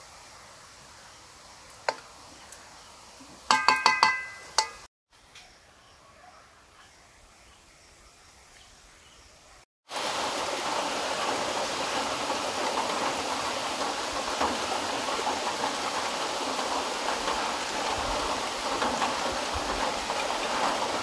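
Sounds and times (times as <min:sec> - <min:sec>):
heavy rain pouring onto a pond: 0:09.8 - 0:21.0.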